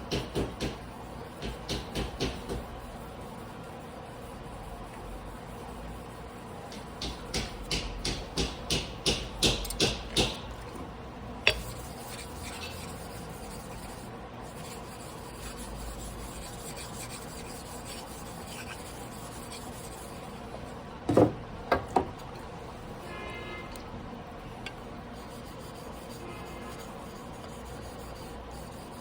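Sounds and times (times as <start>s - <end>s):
knife rasping on whetstone: 11.5s - 20.4s, 25.1s - 29.0s.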